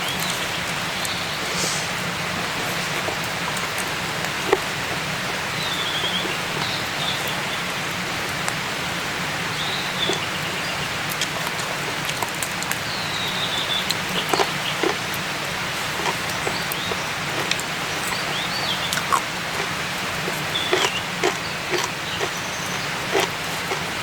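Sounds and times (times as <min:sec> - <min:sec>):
steady rain: 0:00.0 - 0:24.0
raindrops ticking: 0:02.0 - 0:24.0.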